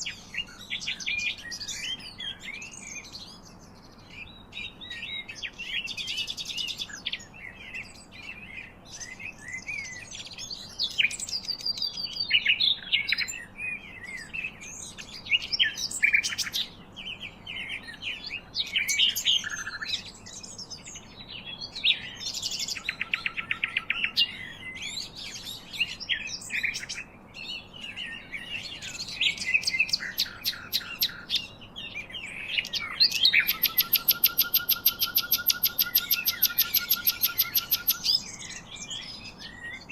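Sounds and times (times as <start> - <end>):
songbirds singing and chirping: 0.0 - 39.9
bird rattling trills: 33.1 - 38.1.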